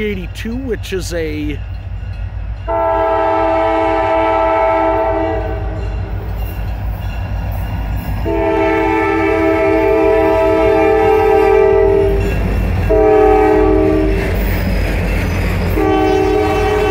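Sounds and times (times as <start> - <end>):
train rumble: 0.0 - 16.9
locomotive air horn: 2.7 - 5.9, 8.2 - 12.2, 12.9 - 14.2, 15.8 - 16.9.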